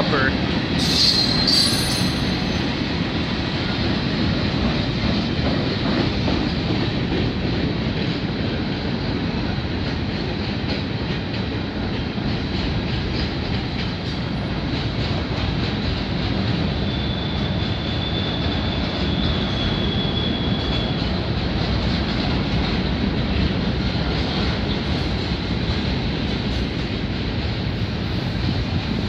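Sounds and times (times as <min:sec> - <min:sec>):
steel wheels rumbling on rail: 0:00.0 - 0:29.0
high wheel squeal: 0:00.8 - 0:02.7, 0:16.7 - 0:21.0
wheels clacking over rail joints: 0:03.8 - 0:19.6.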